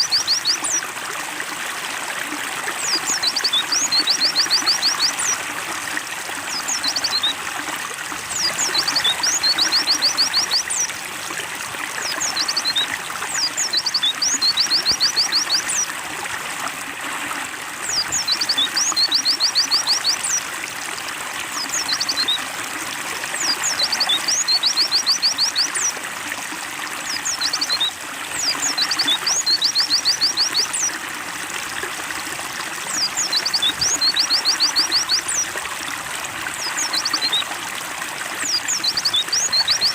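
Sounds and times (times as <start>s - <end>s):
bird singing with trills: 0.0s - 0.8s, 2.8s - 5.4s, 6.5s - 7.4s, 8.3s - 10.9s, 12.0s - 15.9s, 17.8s - 20.4s, 21.5s - 22.4s, 23.4s - 25.9s, 27.1s - 30.9s, 32.9s - 35.5s, 36.6s - 37.5s, 38.4s - 39.9s
water trickling: 0.0s - 39.9s.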